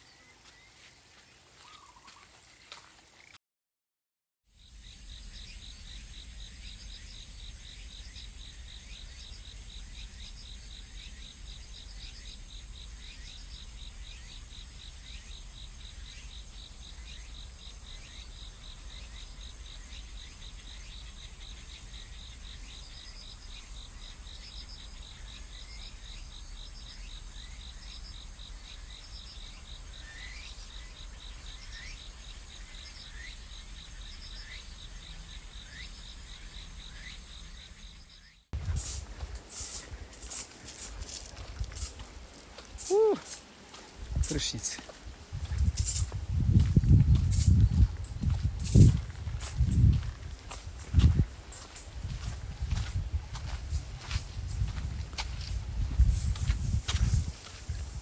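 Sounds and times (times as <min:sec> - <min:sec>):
insects droning and trilling: 0:00.0 - 0:03.4, 0:04.6 - 0:58.0
short falling chirps: 0:42.7 - 0:43.4.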